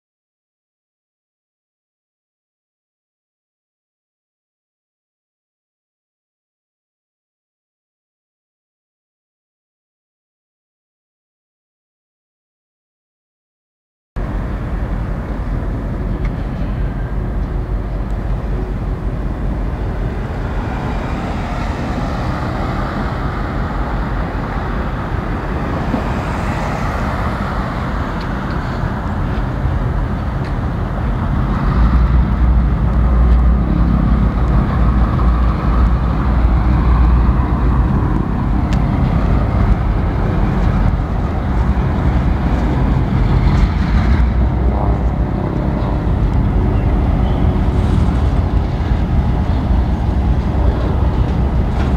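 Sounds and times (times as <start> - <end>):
freight train rumbling past: 14.2 - 51.9.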